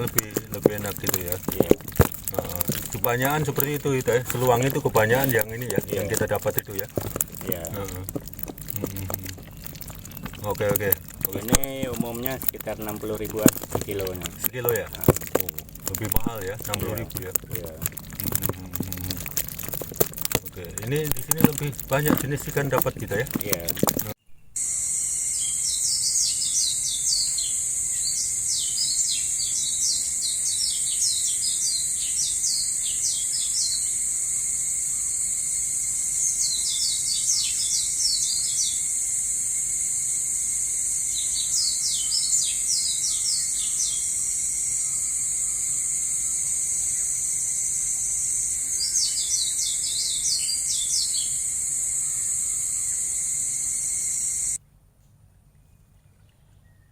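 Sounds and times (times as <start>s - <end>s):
insect chorus drone: 0.0s - 54.6s.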